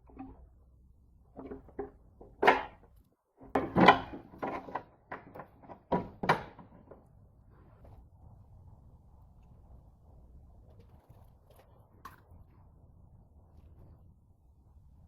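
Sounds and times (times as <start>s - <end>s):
parts and tools knocking and clinking: 1.3s - 7.0s.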